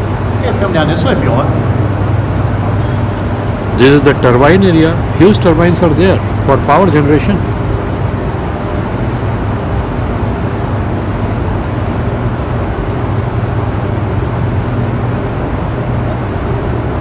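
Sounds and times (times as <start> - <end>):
even rushing noise: 0.0 - 8.2
turbine generators droning: 0.0 - 17.0.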